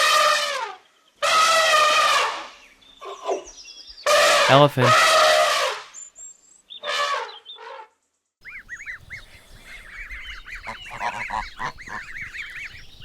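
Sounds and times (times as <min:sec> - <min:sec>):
goslings peeping: 0:04.1 - 0:05.6, 0:08.4 - 0:13.0
low honking calls: 0:04.1 - 0:05.6, 0:08.4 - 0:13.0.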